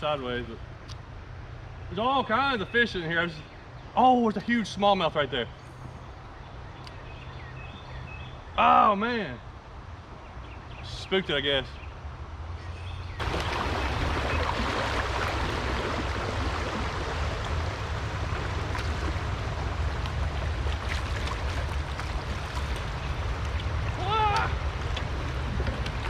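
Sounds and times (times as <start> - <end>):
river water rushing over rocks: 13.2 - 26.0.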